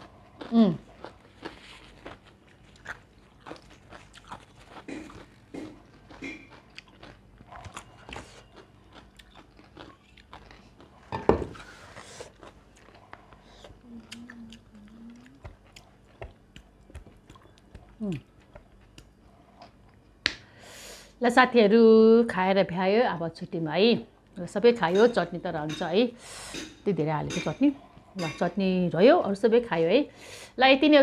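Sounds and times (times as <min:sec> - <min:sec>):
chewing and crunching: 0:00.0 - 0:20.1
wet mouth clicks and smacks: 0:15.2 - 0:19.1.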